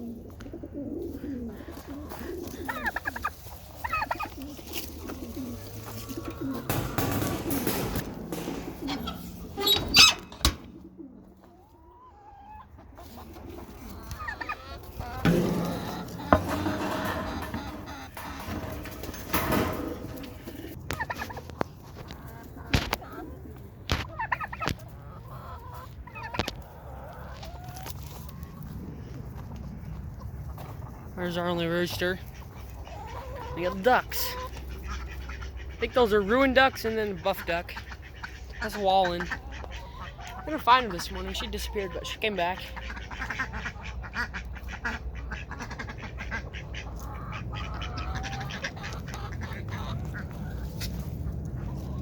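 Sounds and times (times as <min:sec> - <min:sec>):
pigeons cooing: 0:00.0 - 0:31.0
chickens clucking: 0:00.0 - 0:52.0
sharp knocks: 0:15.3 - 0:20.4.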